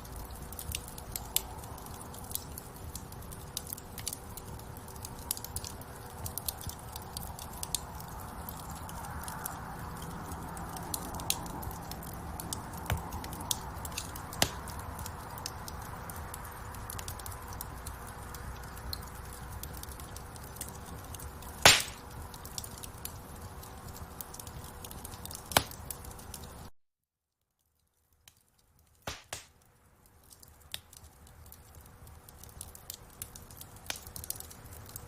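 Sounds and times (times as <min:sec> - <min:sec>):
fire crackling: 0:00.0 - 0:26.7, 0:27.6 - 0:35.0
fire flames rushing: 0:00.1 - 0:26.6
loud pop of fire: 0:21.6 - 0:22.0, 0:29.1 - 0:29.5.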